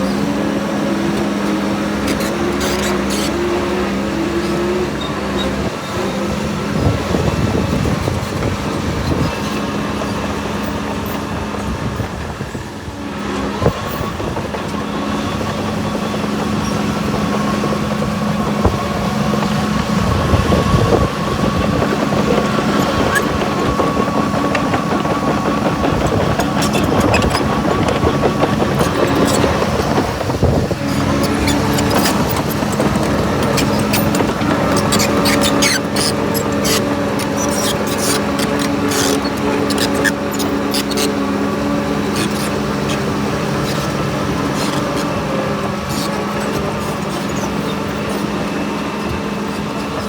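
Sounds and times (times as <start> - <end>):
diesel engine running: 0.0 - 50.0
clanks and rattles: 13.7 - 50.0.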